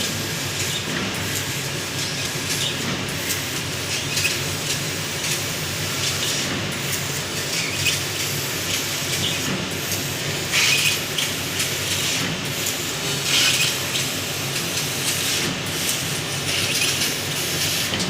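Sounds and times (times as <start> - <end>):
laser cutting machine hissing: 0.0 - 18.0.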